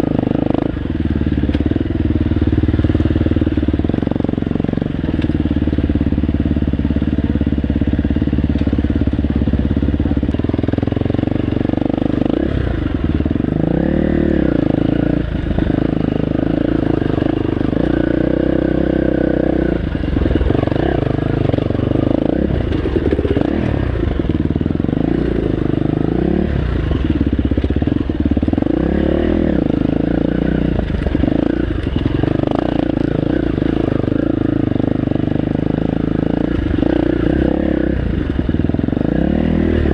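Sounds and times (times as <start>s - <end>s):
dirt bike engine revving: 10.2s - 39.9s.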